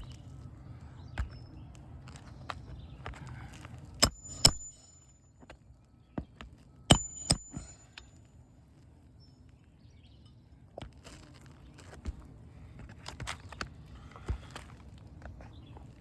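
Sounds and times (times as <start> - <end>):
hammer striking roofing nails: 4.0 - 5.1, 6.9 - 7.9
high metallic ring: 4.0 - 5.4, 6.9 - 8.3.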